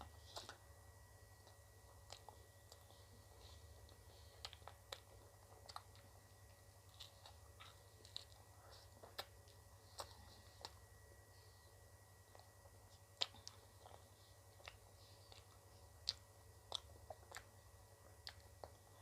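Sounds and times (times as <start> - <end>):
chewing and wet mouth clicks: 1.4 - 3.0, 3.8 - 10.8, 12.3 - 19.0.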